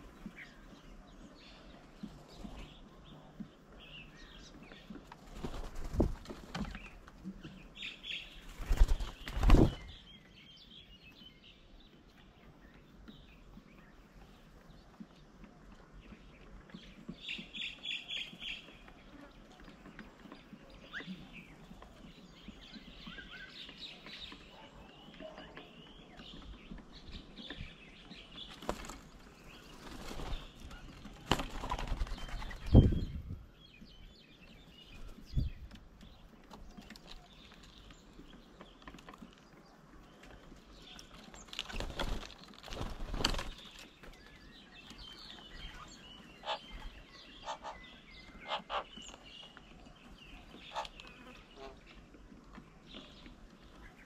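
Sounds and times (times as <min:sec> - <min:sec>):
bird wings flapping: 0:05.0 - 0:07.2, 0:08.3 - 0:10.0, 0:28.4 - 0:33.2, 0:41.0 - 0:44.2
small bird chirps: 0:16.8 - 0:51.8.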